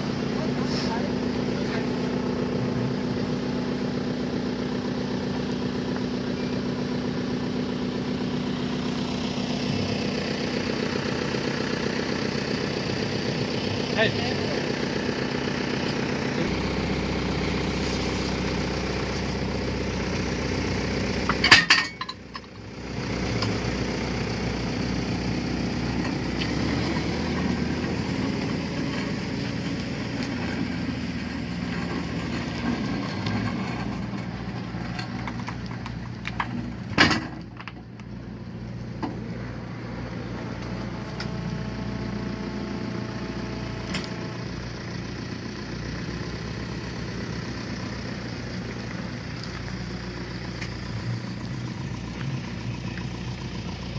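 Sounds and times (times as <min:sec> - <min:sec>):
machine engine running: 0:00.0 - 0:21.5, 0:38.2 - 0:53.9.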